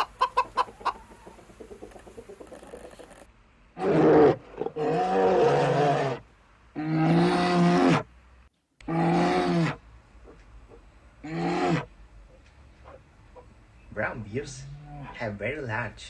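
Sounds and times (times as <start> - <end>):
large animal deep calls: 2.6 - 6.2, 6.8 - 8.1, 8.8 - 10.4, 11.2 - 12.0, 14.5 - 15.2.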